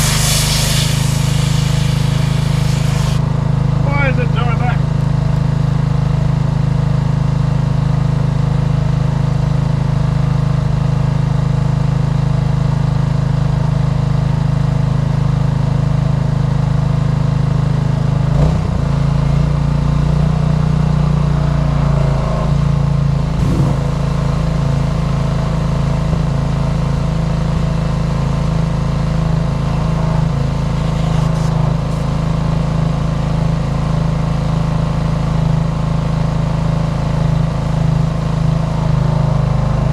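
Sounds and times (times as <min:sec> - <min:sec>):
pressure washer engine running: 0:00.0 - 0:13.4, 0:23.1 - 0:39.8.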